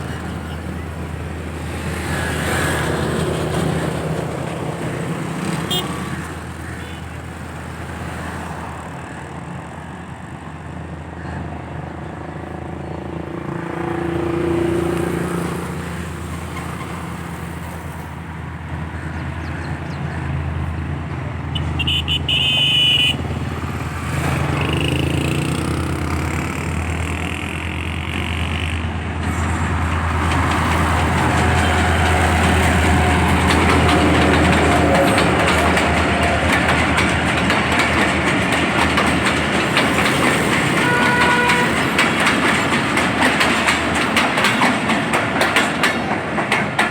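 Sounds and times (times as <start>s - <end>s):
train rumble: 0.0s - 46.9s
high-pitched train toot: 5.7s - 6.2s, 21.6s - 23.2s, 31.0s - 36.5s, 40.7s - 42.1s.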